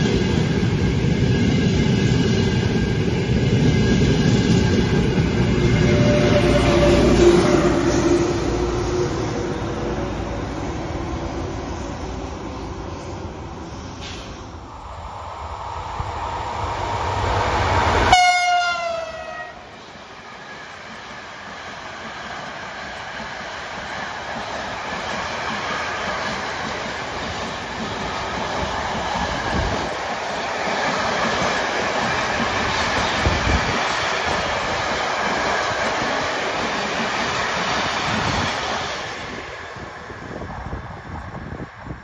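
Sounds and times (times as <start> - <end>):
train horn sliding down: 5.6 - 10.2, 17.9 - 19.6.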